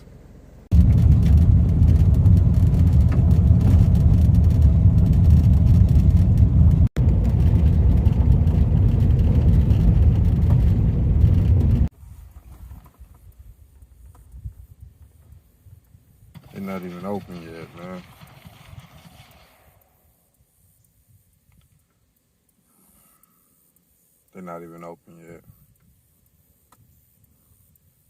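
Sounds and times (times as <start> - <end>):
car driving road and engine noise: 0.0 - 11.9.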